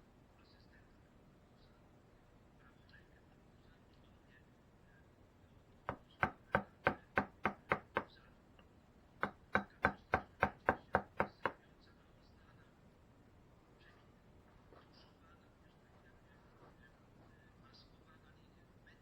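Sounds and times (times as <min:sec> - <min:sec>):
mallet striking gouge into wood: 0:05.9 - 0:08.1, 0:09.2 - 0:11.6.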